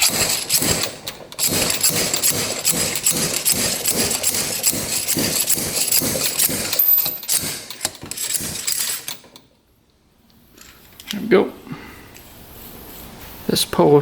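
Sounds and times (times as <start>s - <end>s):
slide hammer clanking: 0.0s - 9.5s.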